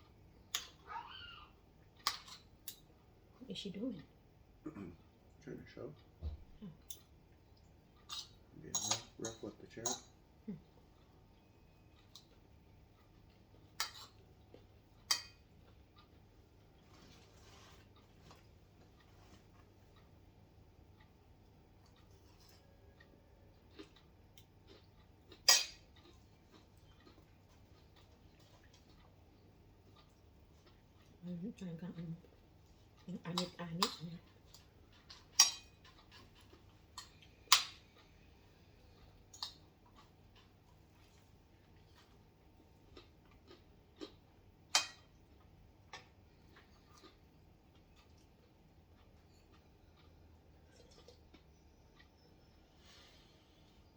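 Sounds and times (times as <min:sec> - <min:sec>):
tableware clinking: 0:08.1 - 0:10.2
soft rustle: 0:16.8 - 0:19.9.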